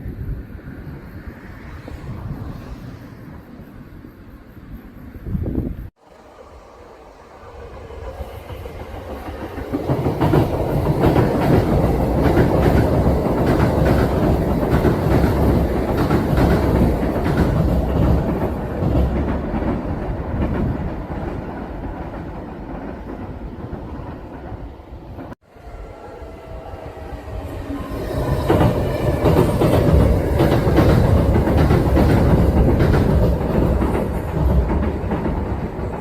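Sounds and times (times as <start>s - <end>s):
electric train passing: 0.0s - 36.0s
train wheels clacking: 8.0s - 24.6s, 27.7s - 36.0s.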